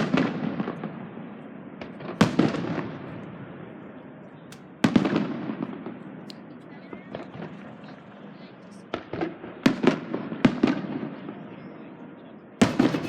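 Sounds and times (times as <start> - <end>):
firework bangs: 1.8 - 3.2, 4.5 - 6.1, 8.9 - 11.4, 12.6 - 13.0
small firework pops: 4.5 - 7.5, 12.6 - 13.0
firework crackling: 12.6 - 13.0.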